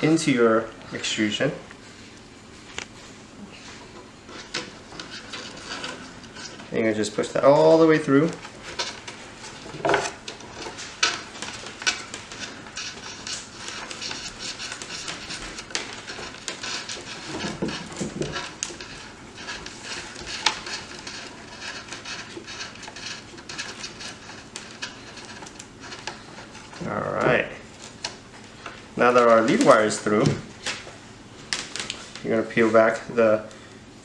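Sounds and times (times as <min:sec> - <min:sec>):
wire scraping metal channel: 0:03.8 - 0:28.2.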